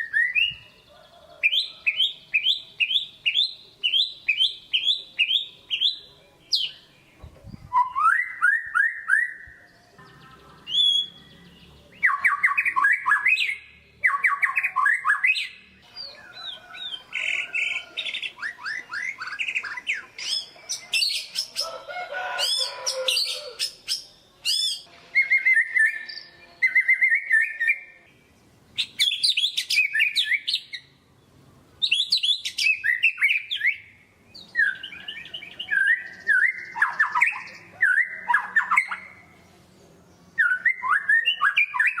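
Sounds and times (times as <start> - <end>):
bird singing whistled phrases: 0.0 - 0.7, 7.7 - 9.6, 10.6 - 11.3, 12.0 - 17.0, 17.6 - 21.6, 22.4 - 27.9, 28.8 - 30.9, 31.8 - 39.2, 40.4 - 42.0.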